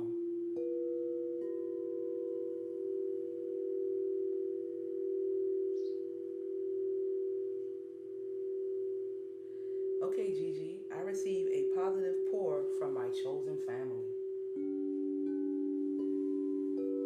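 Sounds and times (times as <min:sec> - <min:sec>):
singing bowls ringing: 0:00.0 - 0:10.2, 0:14.0 - 0:17.0.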